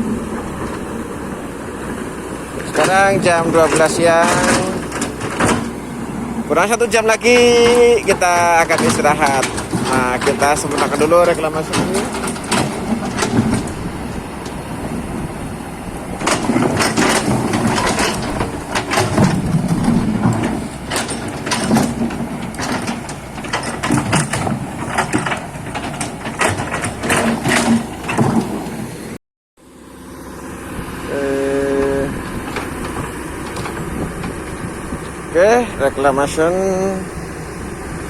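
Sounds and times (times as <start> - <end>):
excavator engine under load: 0.0 - 38.0
sharp clunks: 2.6 - 6.0, 7.2 - 14.6, 16.1 - 28.8
bucket scraping mud and soil: 2.6 - 14.6.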